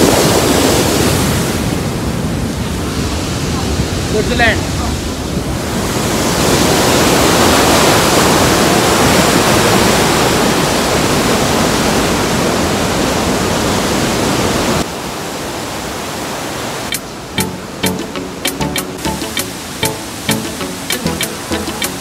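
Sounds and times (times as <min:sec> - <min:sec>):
waterfall rushing: 0:16.3 - 0:22.0.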